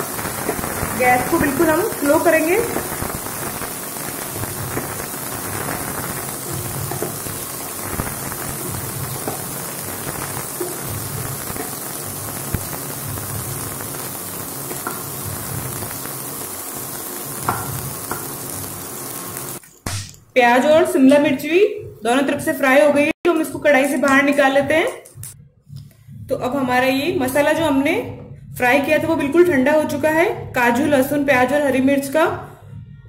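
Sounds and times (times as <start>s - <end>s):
vegetables sizzling in oil: 0.0s - 19.6s.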